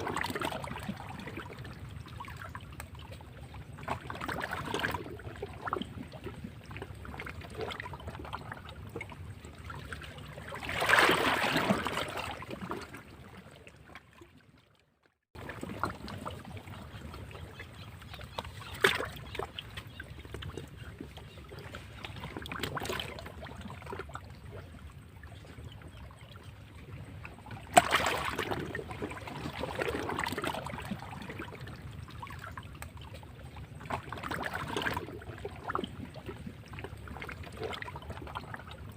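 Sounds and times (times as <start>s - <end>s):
waves splashing against rocks: 10.6s - 12.9s, 27.7s - 30.8s.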